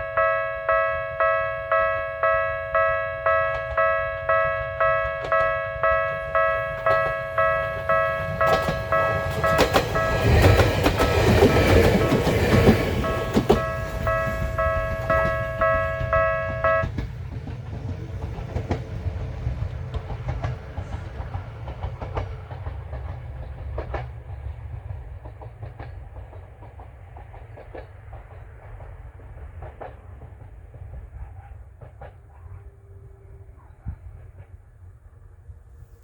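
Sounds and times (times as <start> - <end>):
level crossing warning bell: 0.0 - 17.0
electric train rumbling: 0.0 - 36.0
wheel clacks over rail joints: 4.9 - 31.0.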